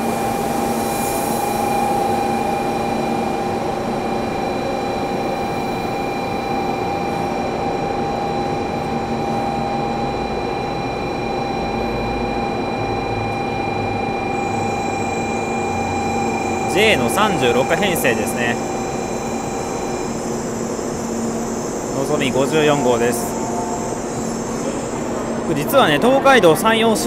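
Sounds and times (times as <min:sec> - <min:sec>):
constant whining tones: 0:00.0 - 0:27.0
train equipment humming: 0:00.0 - 0:27.0.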